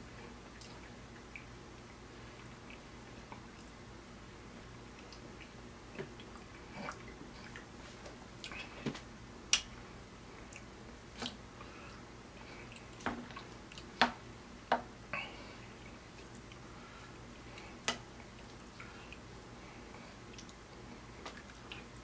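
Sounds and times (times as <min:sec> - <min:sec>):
wet chewing and lip smacking: 0:12.6 - 0:14.0.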